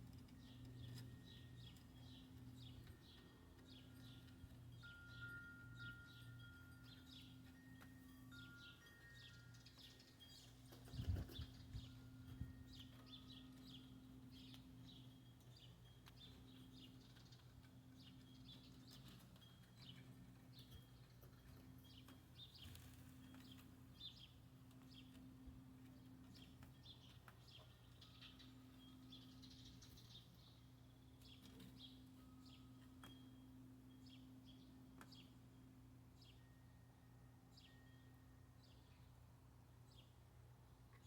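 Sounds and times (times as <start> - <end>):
faint high bird chirps: 0.1 - 40.2.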